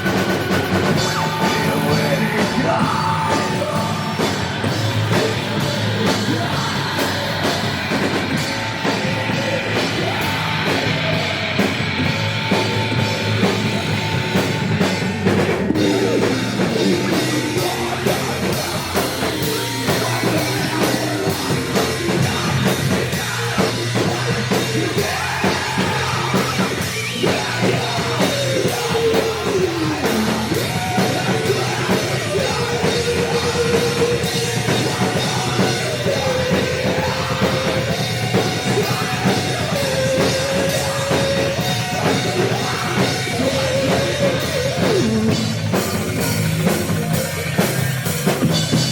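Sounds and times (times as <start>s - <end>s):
drum kit pounding: 0.0s - 48.9s
noise rock band playing: 0.0s - 48.9s.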